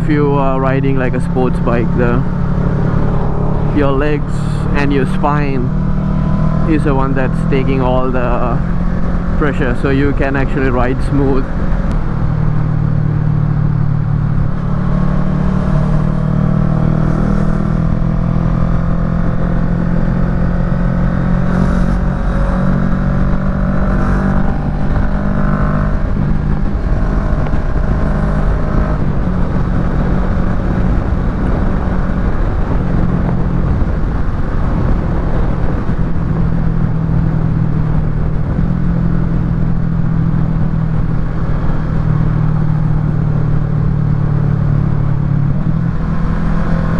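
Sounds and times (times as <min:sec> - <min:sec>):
high engine whine: 0:00.0 - 0:46.9
motorcycle engine running loud: 0:00.0 - 0:46.9.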